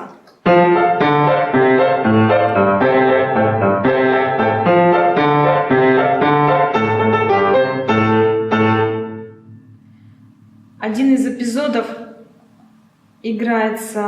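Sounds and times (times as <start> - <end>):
solo piano playing: 0.4 - 11.0.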